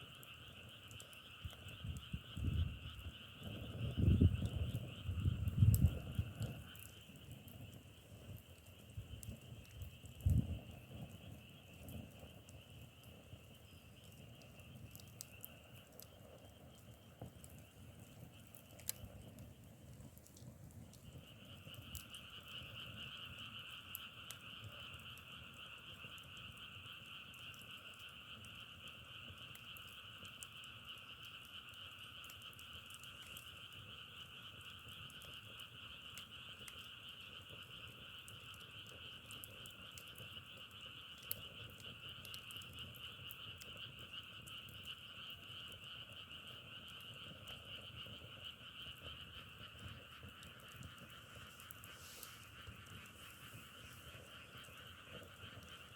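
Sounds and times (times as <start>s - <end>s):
faint clicks: 0.1s - 55.9s
frogs calling in chorus: 21.3s - 30.0s, 31.7s - 55.9s.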